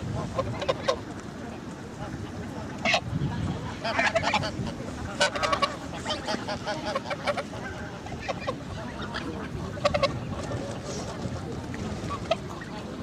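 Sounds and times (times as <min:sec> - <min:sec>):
geese honking: 0:00.0 - 0:01.1, 0:02.8 - 0:11.0.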